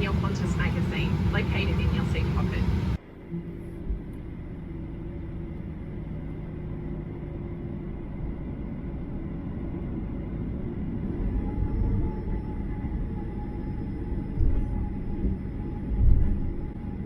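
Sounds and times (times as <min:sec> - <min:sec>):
airplane cabin rumble: 0:00.0 - 0:03.0
faint steady hums: 0:00.0 - 0:05.4.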